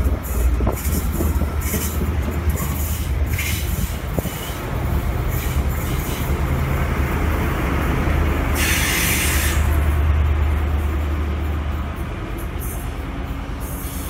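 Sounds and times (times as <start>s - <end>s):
diesel train engine drone: 0.0s - 14.0s
burst of hiss: 8.6s - 9.6s.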